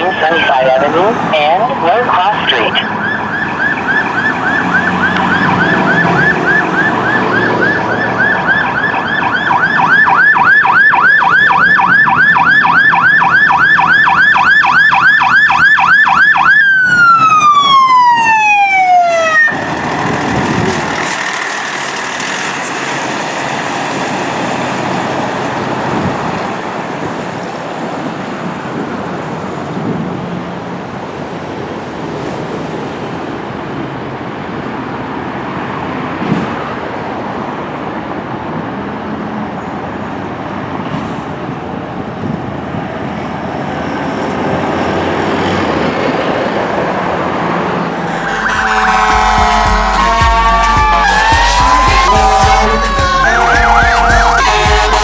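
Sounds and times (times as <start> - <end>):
fire engine siren yelping: 0.0 - 28.4, 47.8 - 55.0
road traffic and engine noise: 0.0 - 55.0.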